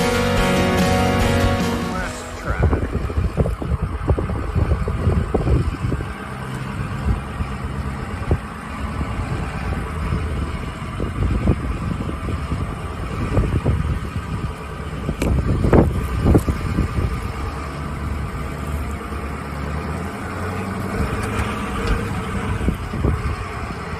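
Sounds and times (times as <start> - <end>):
vehicle engine running: 0.0 - 23.9.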